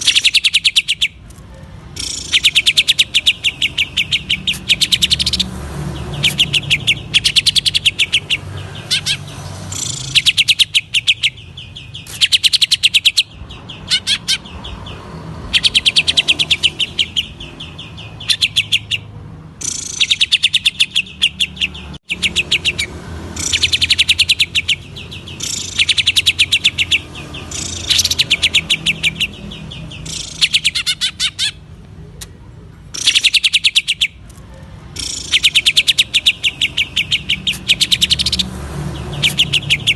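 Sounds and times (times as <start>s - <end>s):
bird singing rapid rattling notes: 0.0s - 31.7s, 32.9s - 39.9s.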